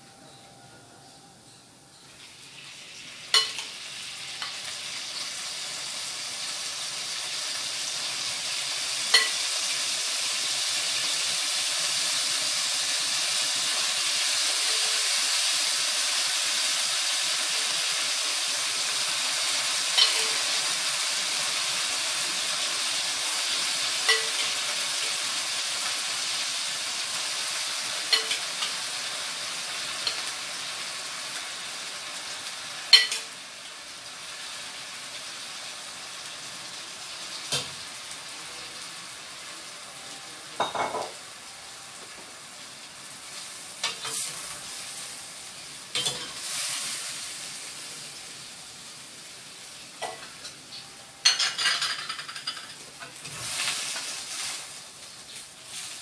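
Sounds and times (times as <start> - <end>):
shrimp sizzling in a pan: 2.1 - 56.0
spoon scraping and knocking pan: 3.3 - 3.7, 28.0 - 28.8.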